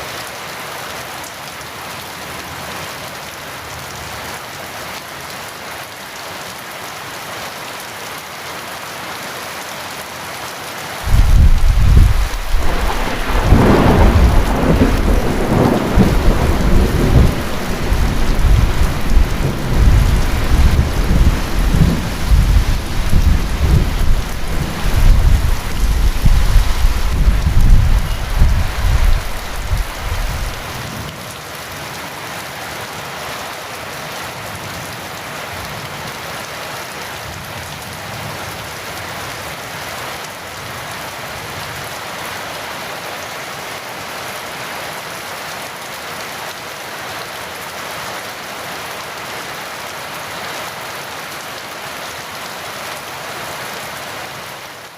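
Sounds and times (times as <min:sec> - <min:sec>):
heavy rain: 0:00.0 - 0:54.9
rolling thunder: 0:11.1 - 0:30.8.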